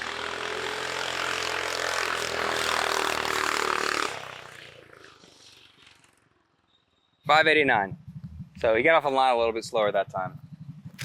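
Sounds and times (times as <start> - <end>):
go-kart engine at full throttle: 0.0 - 6.2.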